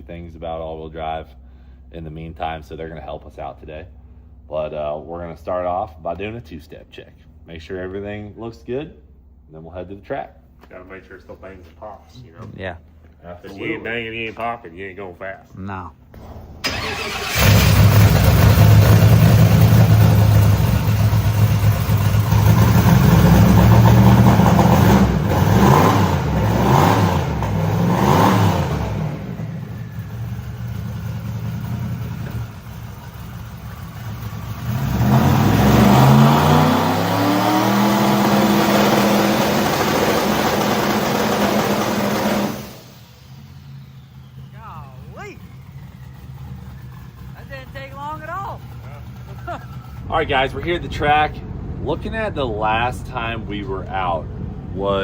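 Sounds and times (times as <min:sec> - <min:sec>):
engine popping and banging: 0:16.2 - 0:36.5, 0:37.8 - 0:43.2
truck engine revving: 0:16.2 - 0:54.7.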